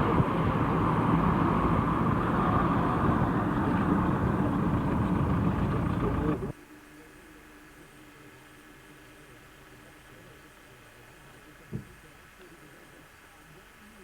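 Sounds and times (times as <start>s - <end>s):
vehicle engine and road noise: 0.0s - 6.5s.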